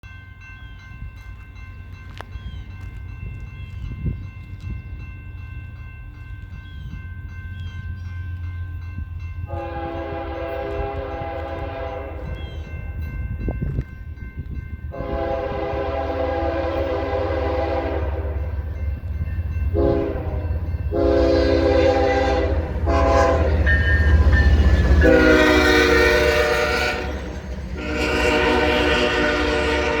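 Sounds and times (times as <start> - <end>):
freight train rumbling: 0.0 - 30.0
locomotive air horn blasts: 9.5 - 12.4, 14.9 - 18.5, 19.7 - 24.2, 24.8 - 30.0.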